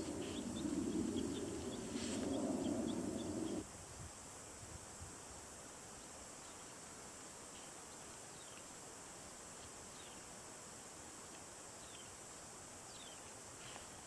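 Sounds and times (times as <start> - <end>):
small bird chirping: 0.0 - 3.6, 11.8 - 12.2, 12.8 - 14.0
steady high hiss: 0.0 - 14.0.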